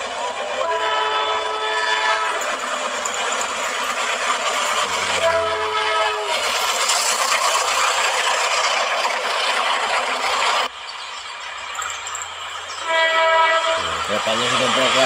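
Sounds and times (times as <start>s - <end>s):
train rushing rumble: 0.0s - 15.0s
train horn: 0.6s - 2.5s, 5.0s - 6.4s, 12.8s - 14.5s.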